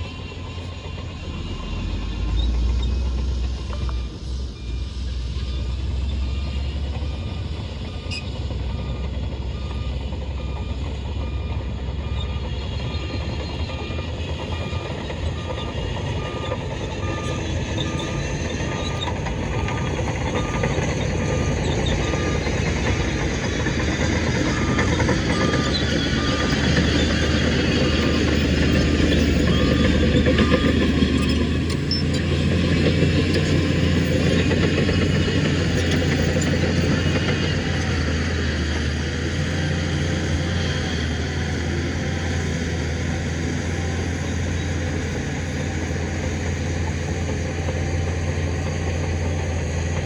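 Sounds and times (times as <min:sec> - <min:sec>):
heavy diesel machinery running: 0:00.0 - 0:50.0
back-up alarm beeping: 0:06.3 - 0:33.2.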